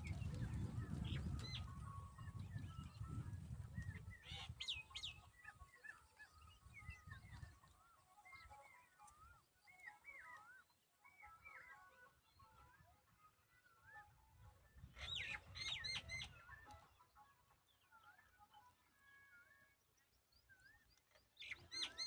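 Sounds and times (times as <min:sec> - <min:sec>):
birds chirping and whistling: 0:00.0 - 0:07.5, 0:15.0 - 0:16.7, 0:20.6 - 0:22.0.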